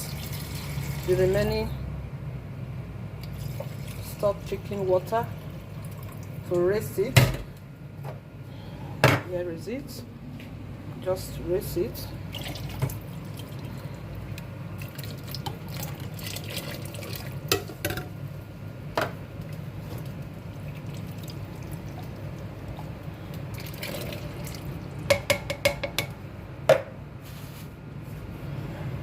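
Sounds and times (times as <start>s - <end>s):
stock pouring into a pot: 23.5s - 24.7s.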